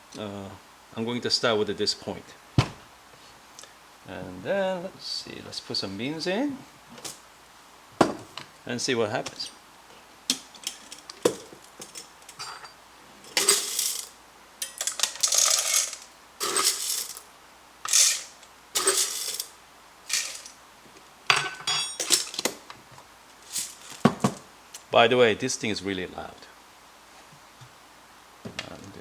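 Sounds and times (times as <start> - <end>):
coffee beans poured into grinder: 13.2 - 17.3, 17.9 - 20.6.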